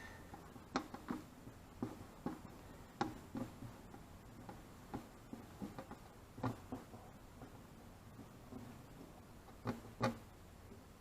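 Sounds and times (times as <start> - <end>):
light clicks and taps of decals: 0.3 - 7.6.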